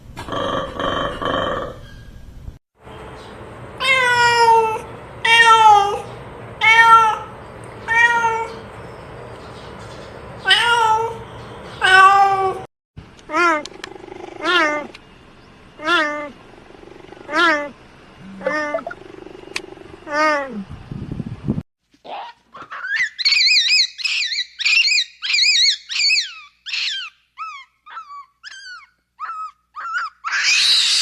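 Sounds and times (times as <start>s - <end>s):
animal calling: 13.3s - 15.0s, 15.8s - 20.6s, 22.1s - 31.0s.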